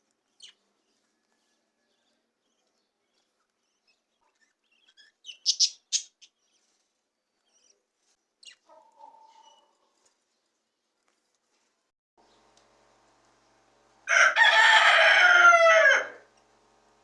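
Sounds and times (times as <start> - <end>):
budgerigars chirping: 4.2 - 6.5.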